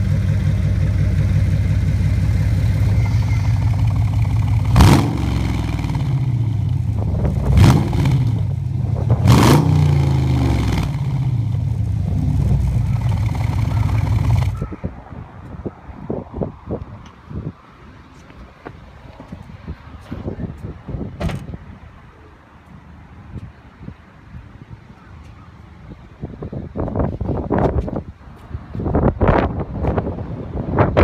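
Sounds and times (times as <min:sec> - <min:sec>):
car exhaust idling: 0:00.0 - 0:14.6
engine revving: 0:00.0 - 0:14.6.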